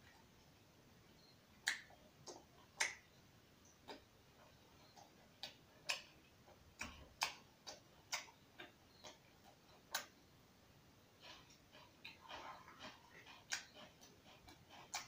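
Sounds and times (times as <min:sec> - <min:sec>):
person chewing food: 0:03.6 - 0:10.2, 0:11.2 - 0:15.0.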